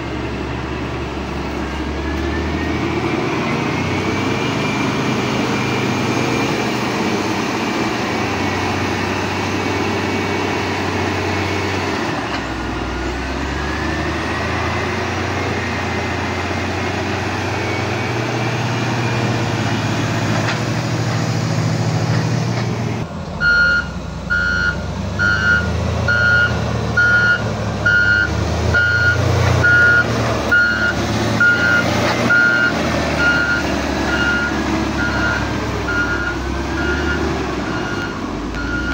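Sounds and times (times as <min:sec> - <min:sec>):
diesel truck engine running: 0:00.0 - 0:38.9
reversing alarm beeping: 0:23.4 - 0:38.9.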